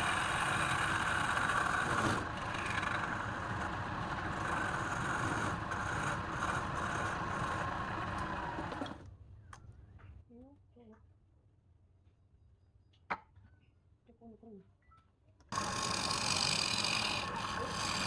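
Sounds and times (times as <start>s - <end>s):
power tool motor whining: 0.0s - 9.0s, 15.5s - 18.0s.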